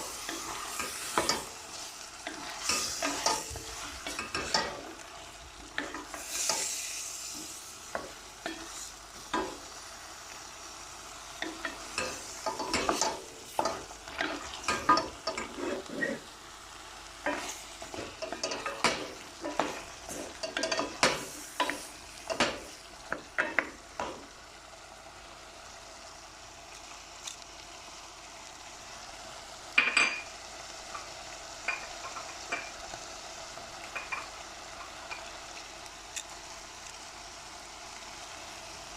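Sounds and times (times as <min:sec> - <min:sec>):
vegetables sizzling in oil: 0:00.0 - 0:38.9
spoon scraping and clinking in pan: 0:02.3 - 0:04.8, 0:11.4 - 0:16.2, 0:17.3 - 0:22.5.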